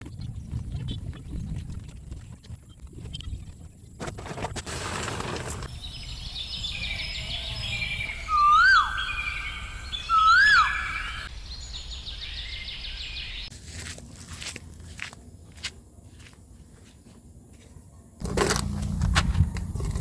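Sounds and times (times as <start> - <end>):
birds chirping trills: 5.7 - 13.5
loud whistled bird notes: 5.7 - 13.5.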